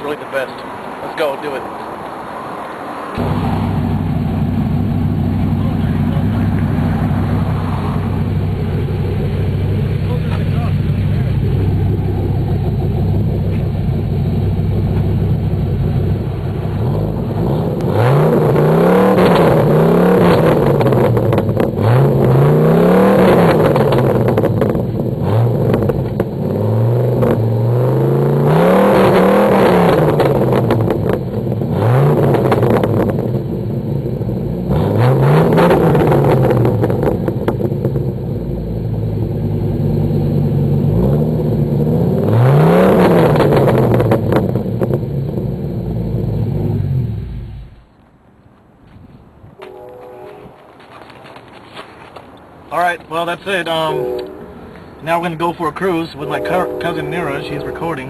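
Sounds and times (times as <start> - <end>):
truck engine idling and revving: 0.0 - 58.0.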